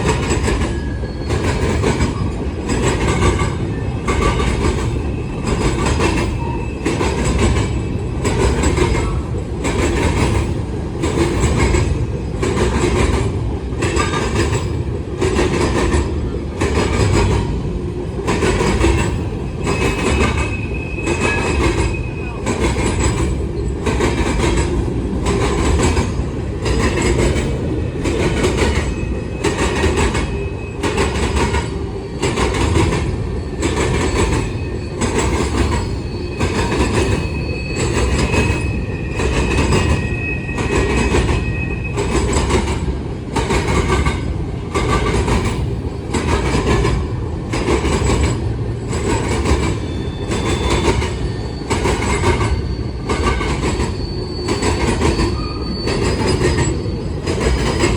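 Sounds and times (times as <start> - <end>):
train cars rumbling past: 0.0 - 57.9
wheels clacking on rail joints: 0.0 - 57.9
wheel squeal: 0.2 - 9.3, 18.8 - 24.7, 28.2 - 42.9, 47.9 - 57.9.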